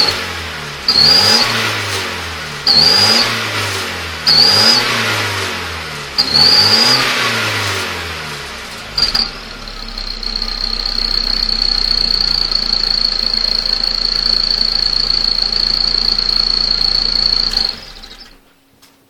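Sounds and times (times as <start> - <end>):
car engine idling: 8.0 - 18.5
high-pitched exhaust whistle: 8.9 - 18.4.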